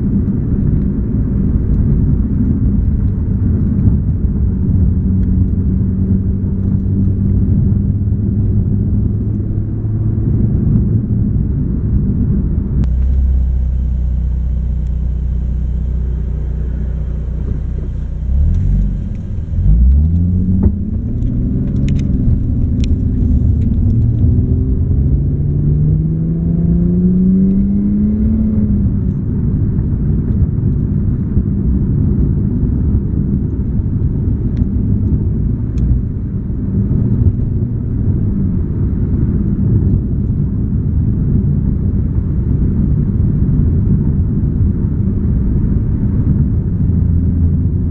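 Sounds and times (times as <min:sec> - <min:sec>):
car engine drone from cabin: 0:12.7 - 0:29.2
road noise: 0:12.8 - 0:27.0.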